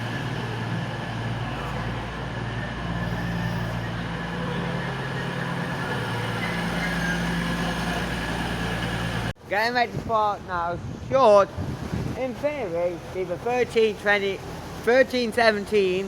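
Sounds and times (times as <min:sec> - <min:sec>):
diesel train engines idling: 0:00.0 - 0:09.4.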